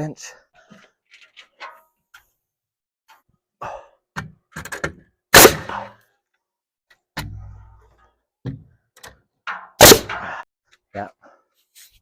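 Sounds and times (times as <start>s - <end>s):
knocks from handling wall framing: 8.4s - 8.8s.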